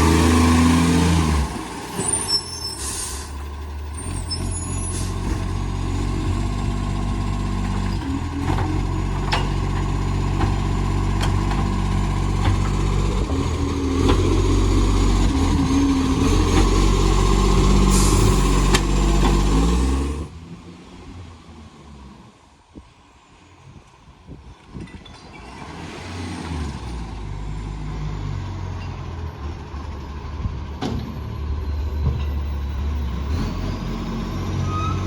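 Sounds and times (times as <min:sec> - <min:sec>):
diesel engine running hard: 0:00.0 - 0:02.0, 0:02.7 - 0:20.3.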